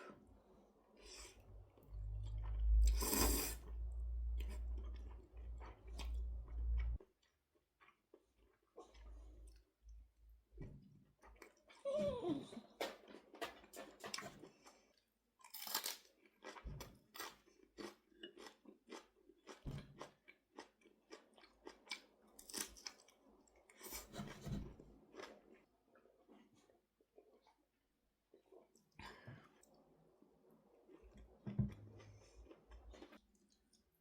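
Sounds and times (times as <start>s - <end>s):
person chewing crunchy food: 1.2s - 9.7s, 13.1s - 27.6s, 30.8s - 33.8s.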